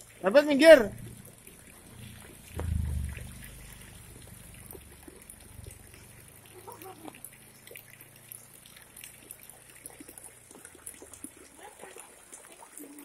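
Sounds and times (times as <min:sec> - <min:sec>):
drips and splashes: 0:00.0 - 0:13.0
light rain on water: 0:00.0 - 0:13.0
low rumble: 0:00.9 - 0:06.4.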